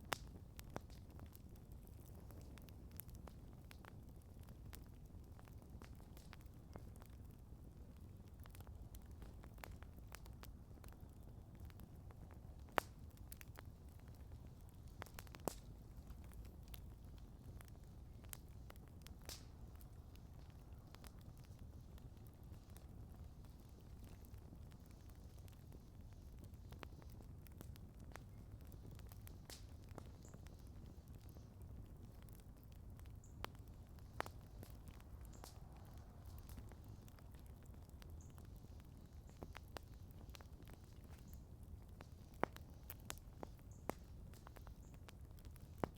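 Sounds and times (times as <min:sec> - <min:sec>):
campfire crackling: 0:00.0 - 0:45.9
sharp fire pops: 0:08.2 - 0:45.9.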